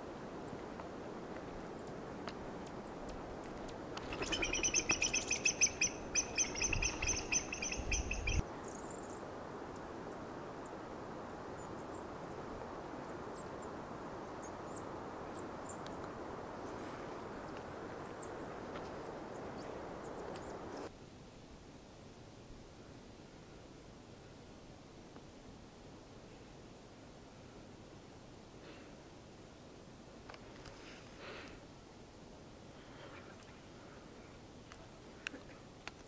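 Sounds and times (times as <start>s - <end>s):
steady outdoor hiss: 0.0s - 36.0s
bird calling fast notes: 4.1s - 8.4s.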